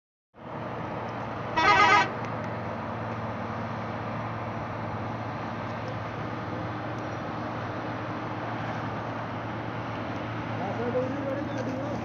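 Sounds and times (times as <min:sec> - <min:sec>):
truck engine running: 0:00.6 - 0:12.0
truck horn honk: 0:01.6 - 0:02.2.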